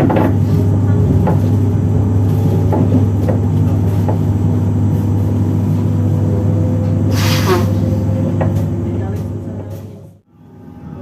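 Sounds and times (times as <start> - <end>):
electric train hum: 0.0 - 11.0.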